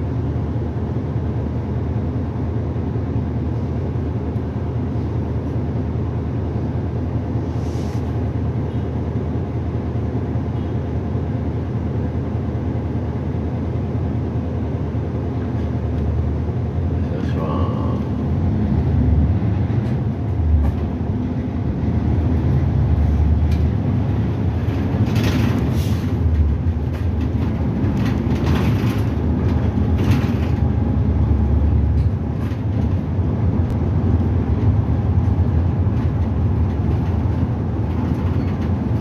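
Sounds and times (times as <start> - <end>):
bus engine and road rumble: 0.0 - 39.0
short hissing: 7.4 - 8.1.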